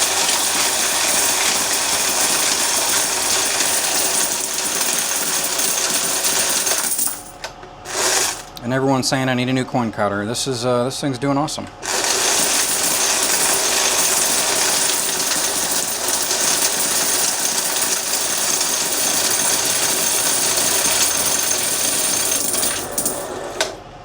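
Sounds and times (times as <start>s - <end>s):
coin counter rattling: 0.0s - 8.5s, 11.9s - 23.4s.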